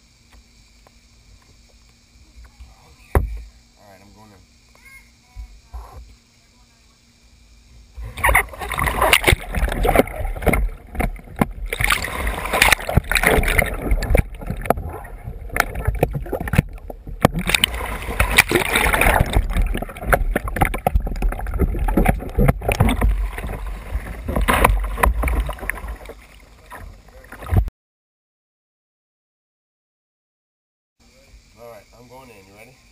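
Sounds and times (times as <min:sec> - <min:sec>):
water splashing around kayak: 0:07.9 - 0:27.7.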